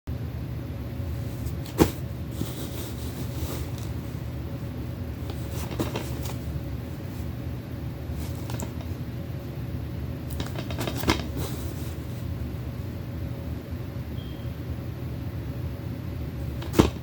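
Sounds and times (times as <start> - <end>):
steady low hum: 0.1 - 17.0
faint packaging rustling: 1.1 - 4.4, 5.2 - 7.4, 8.1 - 9.0, 10.3 - 12.4
plastic case clicking: 5.3 - 6.4, 10.3 - 11.4.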